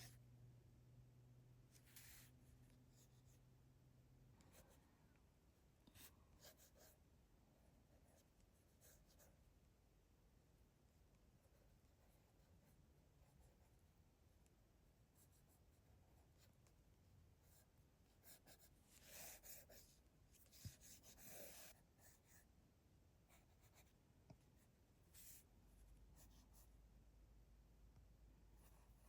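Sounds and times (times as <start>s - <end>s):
pencil scratching on paper: 1.8s - 2.3s, 17.5s - 22.4s.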